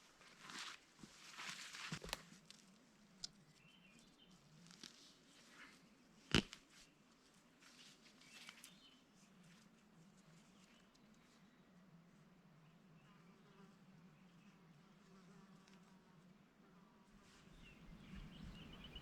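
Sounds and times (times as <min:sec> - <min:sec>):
rustling and handling noises: 0:00.2 - 0:02.7.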